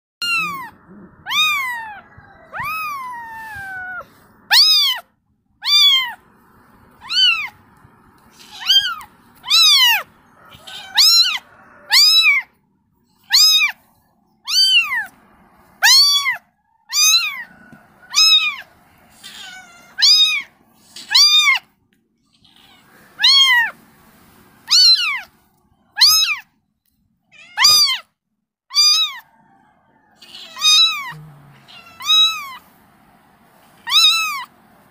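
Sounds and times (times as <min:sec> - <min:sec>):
kitten meowing: 0:00.2 - 0:06.2, 0:06.9 - 0:07.6, 0:08.3 - 0:12.5, 0:13.3 - 0:13.8, 0:14.5 - 0:15.2, 0:15.8 - 0:17.5, 0:18.1 - 0:21.7, 0:22.3 - 0:23.8, 0:24.7 - 0:25.3, 0:26.0 - 0:26.5, 0:27.4 - 0:28.1, 0:28.7 - 0:29.2, 0:30.2 - 0:32.6, 0:33.8 - 0:34.5.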